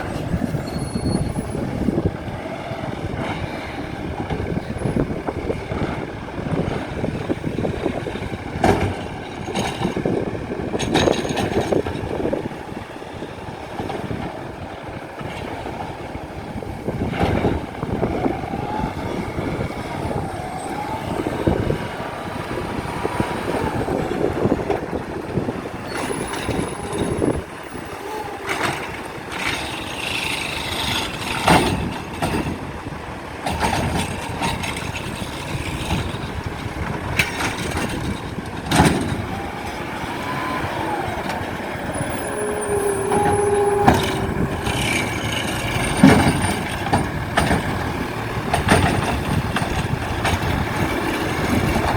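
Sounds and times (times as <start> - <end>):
garbage truck engine revving: 0.0 - 51.9
metal clanks and bangs: 28.5 - 32.7, 43.0 - 51.9.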